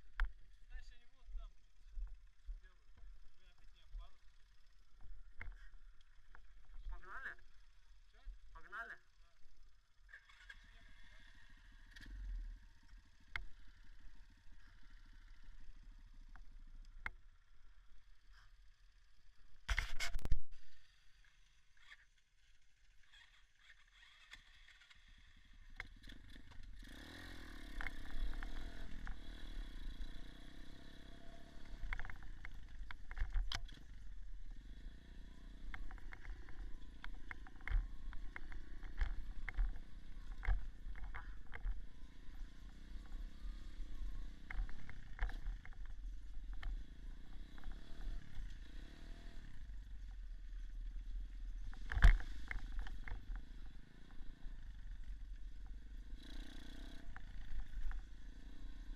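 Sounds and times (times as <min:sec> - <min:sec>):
dirt bike engine revving: 0:25.9 - 0:33.0.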